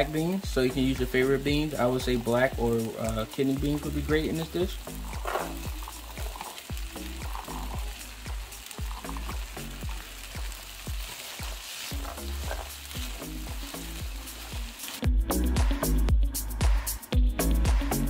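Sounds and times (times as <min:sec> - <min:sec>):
food sizzling in a pan: 0:00.0 - 0:16.0
background music with low beat: 0:00.0 - 0:18.0
spatula stirring and scraping: 0:04.8 - 0:15.0.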